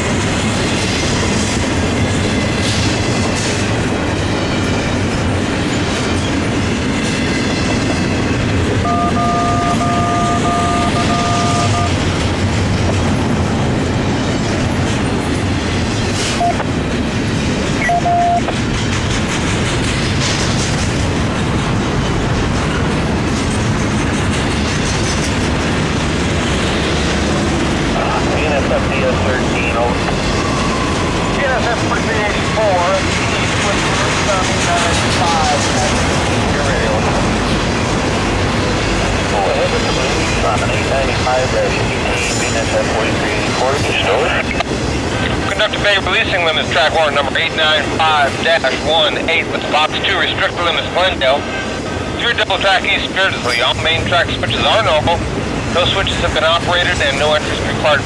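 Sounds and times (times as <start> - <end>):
train wheels rumbling on rails: 0.0 - 8.9, 10.2 - 58.0
two-note steady tone: 8.8 - 11.9.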